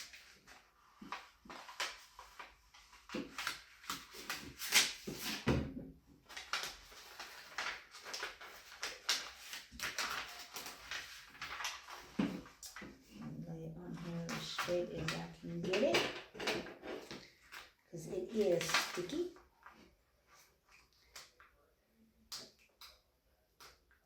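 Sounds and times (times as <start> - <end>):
vinyl paper peeling and crinkling: 0.0 - 5.5, 6.2 - 15.9, 17.1 - 21.5.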